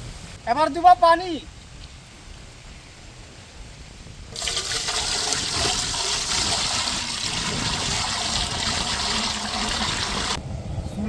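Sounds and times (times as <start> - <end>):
water pouring into a saucepan: 4.4 - 10.4.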